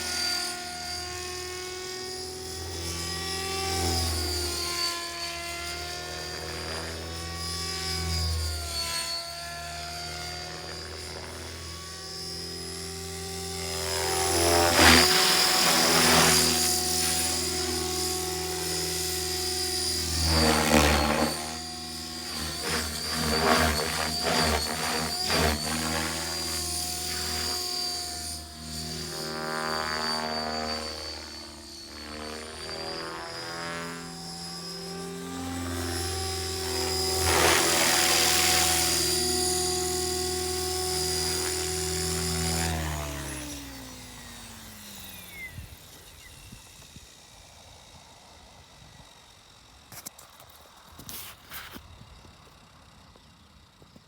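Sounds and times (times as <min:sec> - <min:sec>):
model helicopter rotor whine: 0:00.0 - 0:54.0.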